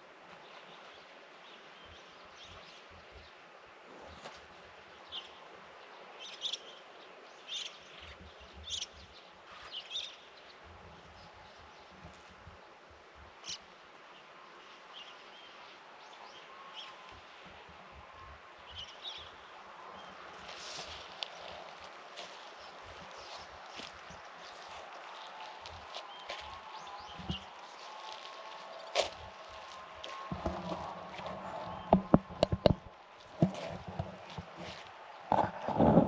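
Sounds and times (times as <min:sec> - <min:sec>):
steady outdoor hiss: 0:00.0 - 0:36.0
birds chirping: 0:13.4 - 0:36.0.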